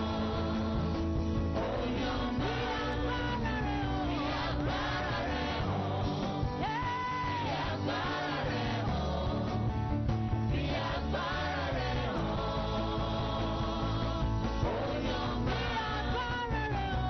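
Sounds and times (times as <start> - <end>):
live band playing gospel music: 0.0 - 17.0.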